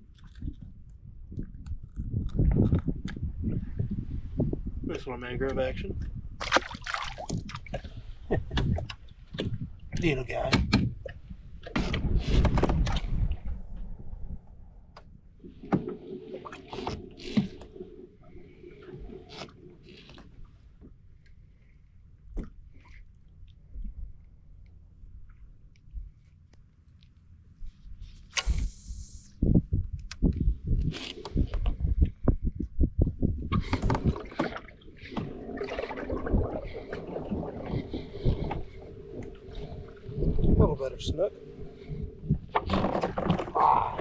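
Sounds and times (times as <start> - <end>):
water and wind rustle: 0.0 - 44.0
knocks and clatter on kayak: 6.0 - 13.4, 33.4 - 38.8, 42.3 - 44.0.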